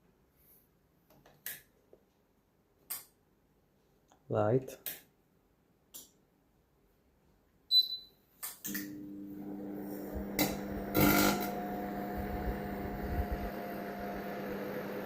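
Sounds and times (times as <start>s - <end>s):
keypad beep: 7.7s - 8.1s
microwave oven humming: 8.7s - 15.0s.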